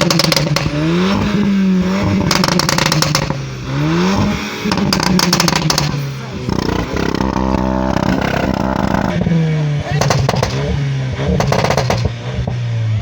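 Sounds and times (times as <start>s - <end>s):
car engine revving: 0.0s - 13.0s
exhaust crackling: 0.0s - 13.0s.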